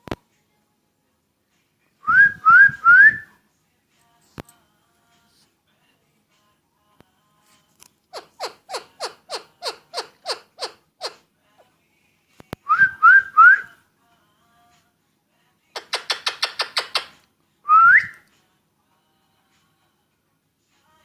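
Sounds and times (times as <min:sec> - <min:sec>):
parakeet calling and whistling: 0:08.1 - 0:11.2, 0:15.8 - 0:17.2.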